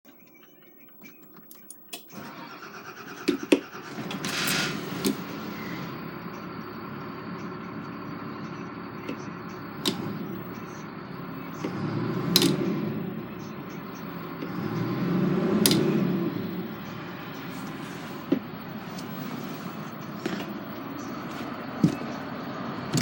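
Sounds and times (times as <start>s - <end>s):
vehicle engine starting and idling: 2.0s - 23.0s
sharp clicks: 9.0s - 23.0s.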